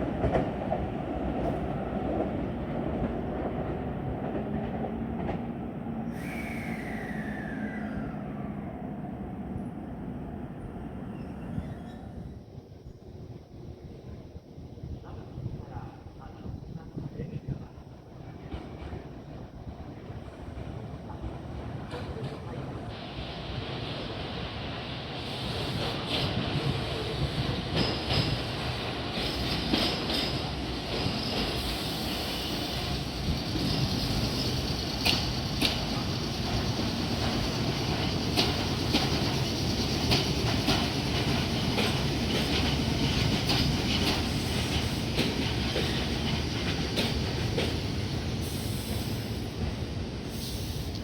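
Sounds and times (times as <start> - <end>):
train rumble: 0.0 - 51.0
train wheels clacking on rail joints: 25.7 - 51.0.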